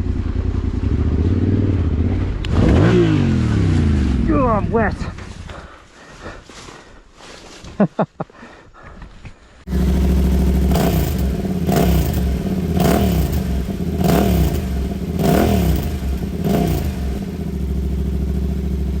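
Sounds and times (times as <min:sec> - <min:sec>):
motorcycle engine revving: 0:00.0 - 0:05.3, 0:09.7 - 0:19.0.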